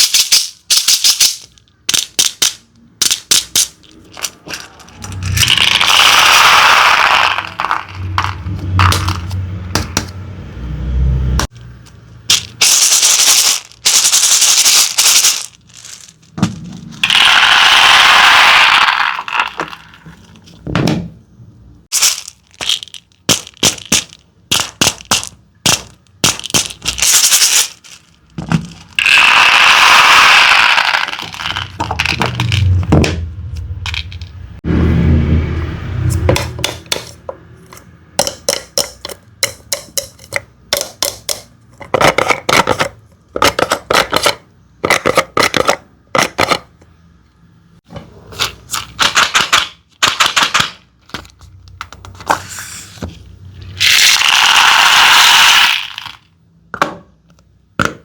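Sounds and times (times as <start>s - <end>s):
candy pieces clicking: 0.0s - 9.2s, 11.4s - 20.1s, 21.9s - 32.8s, 48.7s - 52.1s, 53.8s - 56.3s
candies clattering into containers: 0.0s - 9.9s, 11.7s - 20.6s, 21.9s - 33.1s, 33.8s - 34.4s, 38.2s - 46.8s, 48.1s - 52.6s, 53.7s - 58.0s.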